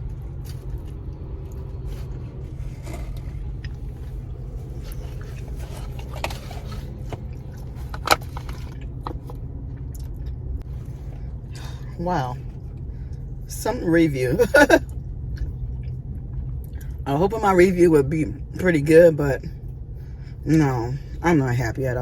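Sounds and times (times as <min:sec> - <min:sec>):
chewing hard pizza crust: 0:00.0 - 0:10.4
steady low hum: 0:00.0 - 0:22.0.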